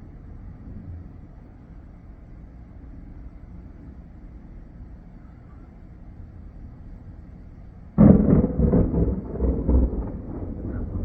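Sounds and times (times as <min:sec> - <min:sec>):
thunder clap: 0:08.0 - 0:11.0
thunder rumbling: 0:08.0 - 0:11.0.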